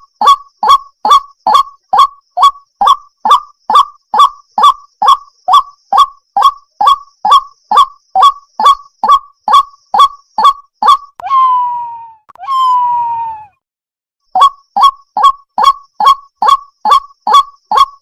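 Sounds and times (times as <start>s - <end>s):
water hen calling: 0.0s - 13.6s.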